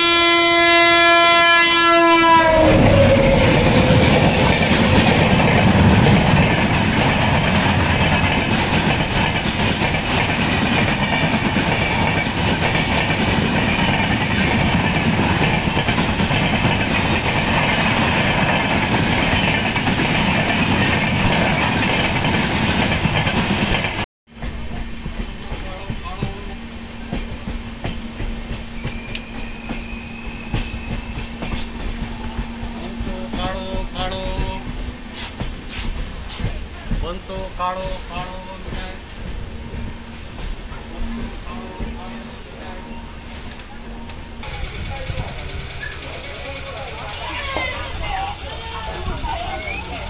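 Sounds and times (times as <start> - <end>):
locomotive horn: 0.0 - 4.4
train coaches rumbling past: 0.0 - 50.0.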